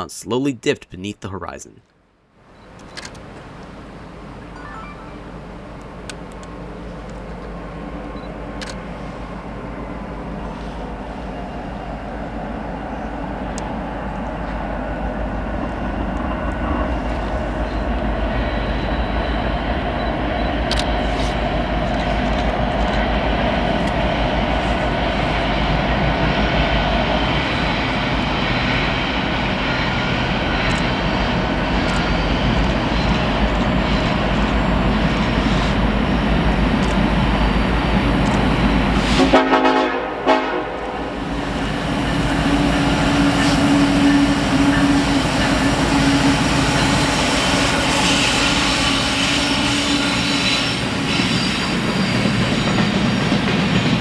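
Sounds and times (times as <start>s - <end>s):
freight train rumbling past: 2.4s - 54.0s.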